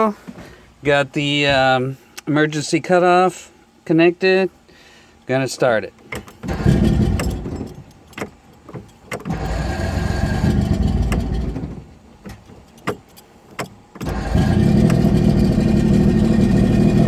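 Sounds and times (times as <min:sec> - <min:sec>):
outboard motor running: 0:06.2 - 0:12.9, 0:13.9 - 0:17.0.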